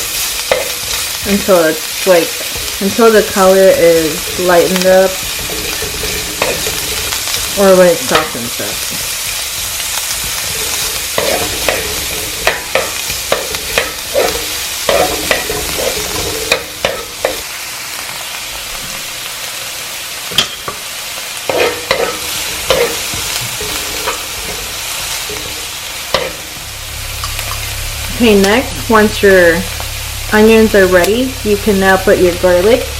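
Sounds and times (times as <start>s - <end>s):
onions sizzling in hot oil: 0.0s - 32.9s
utensil scraping and clicking on pan: 0.4s - 1.3s, 2.4s - 17.4s, 21.5s - 26.4s.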